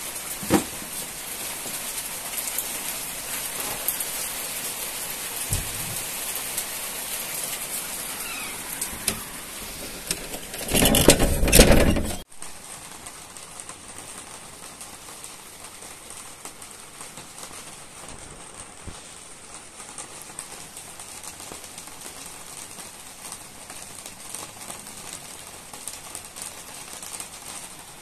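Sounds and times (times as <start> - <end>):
steady rain falling: 0.0 - 28.0
raindrops ticking: 12.4 - 28.0.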